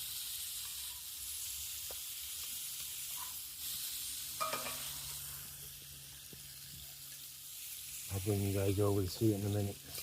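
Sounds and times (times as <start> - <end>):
stir fry sizzling in a pan: 0.0 - 10.0.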